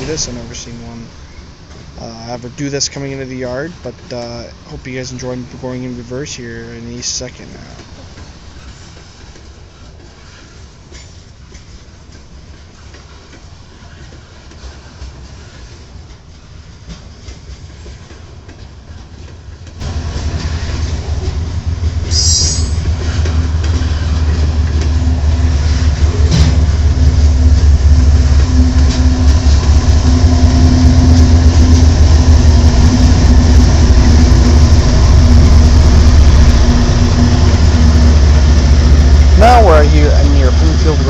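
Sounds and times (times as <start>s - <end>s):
freight train rumbling past: 0.0s - 41.0s
rail clicks: 0.0s - 41.0s
high-pitched wheel squeal: 22.1s - 22.9s.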